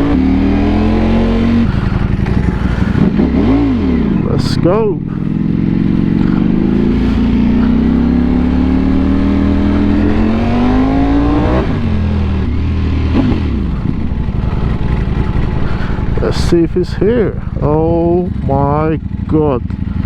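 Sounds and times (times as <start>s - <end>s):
motorbike engine accelerating hard: 0.0s - 20.0s.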